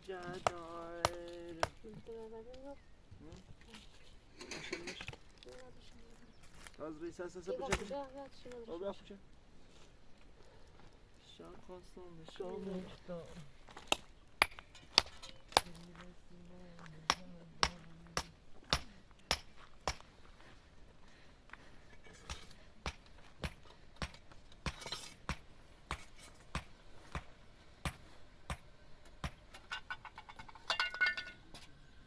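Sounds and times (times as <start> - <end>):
hard objects clinking together: 29.5 - 31.8.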